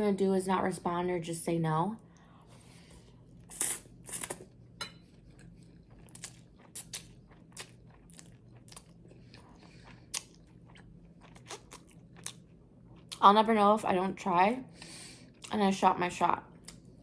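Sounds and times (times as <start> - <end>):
bread crunching while chewed: 5.2 - 13.2.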